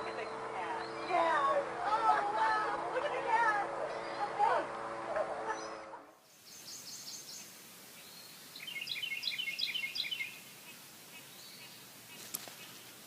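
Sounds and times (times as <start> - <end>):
small songbird chirping: 0.0 - 1.4, 5.6 - 13.0
steady outdoor hiss: 0.0 - 13.0.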